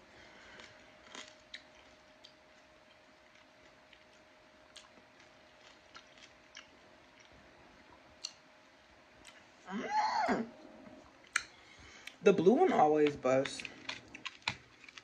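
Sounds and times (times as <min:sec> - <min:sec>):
faint steady hum: 0:00.0 - 0:15.0
crisp crunches: 0:00.4 - 0:07.3, 0:13.4 - 0:15.0
chewing: 0:00.4 - 0:07.4, 0:13.4 - 0:15.0.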